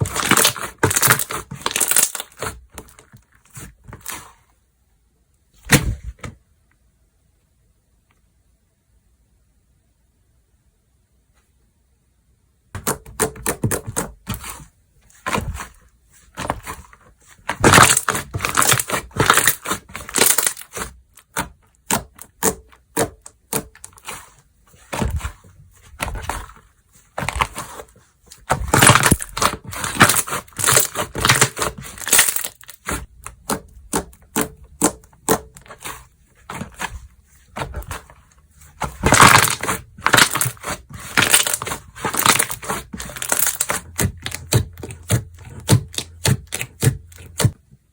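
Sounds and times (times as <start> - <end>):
slime crackling and popping: 0.0 - 2.5, 17.5 - 23.8, 28.4 - 36.8, 38.8 - 47.5.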